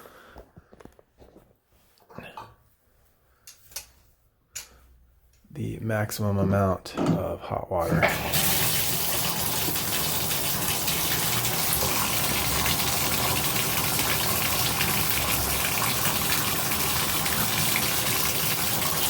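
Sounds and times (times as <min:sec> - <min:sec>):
shower water running: 0:07.9 - 0:19.0.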